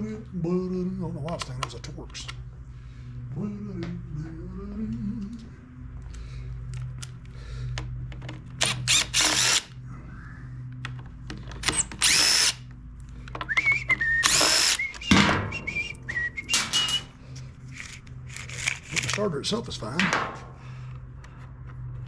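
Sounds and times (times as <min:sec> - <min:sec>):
power driver spinning screws: 0:08.6 - 0:09.7, 0:11.6 - 0:12.6, 0:13.5 - 0:15.2, 0:16.5 - 0:17.1, 0:17.7 - 0:19.2.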